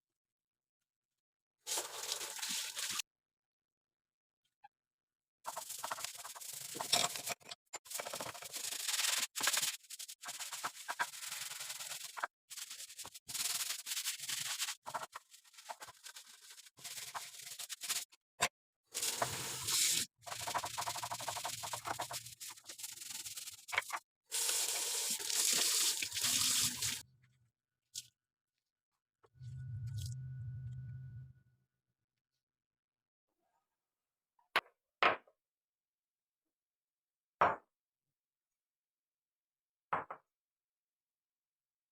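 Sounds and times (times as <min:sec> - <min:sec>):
rubbing and scraping strokes: 0:05.5 - 0:18.2, 0:19.1 - 0:27.0.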